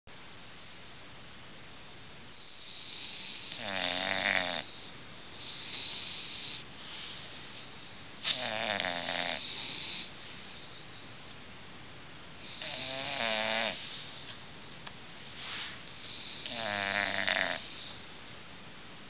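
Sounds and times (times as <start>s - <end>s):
dog snoring: 2.3s - 6.6s, 8.2s - 10.1s, 12.4s - 13.9s, 16.0s - 18.0s.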